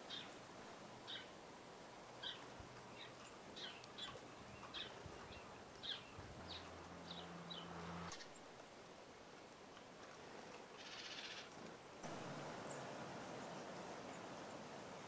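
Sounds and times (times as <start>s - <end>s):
background hiss: 0.0s - 15.0s
small birds chirping: 1.0s - 1.3s, 2.2s - 8.5s, 10.8s - 11.5s
low steady hum: 12.0s - 15.0s.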